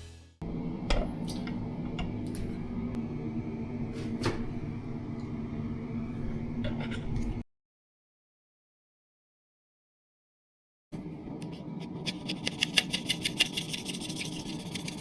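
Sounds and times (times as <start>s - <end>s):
steady low hum: 0.4s - 7.4s.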